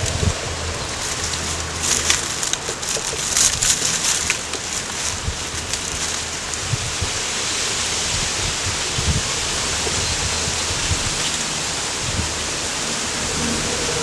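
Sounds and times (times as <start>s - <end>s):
loud rushing hiss: 0.0s - 14.0s
tractor engine droning: 0.0s - 14.0s.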